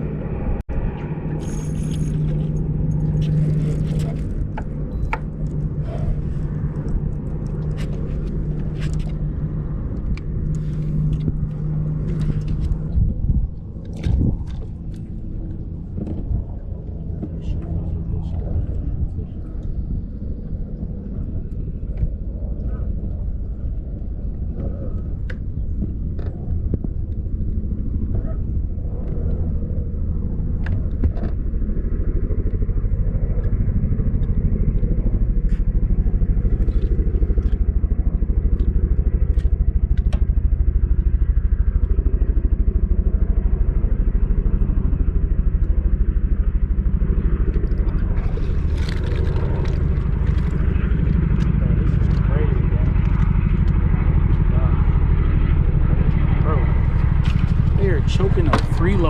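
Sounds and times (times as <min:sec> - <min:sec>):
boat outboard motor running: 0:34.1 - 0:59.0.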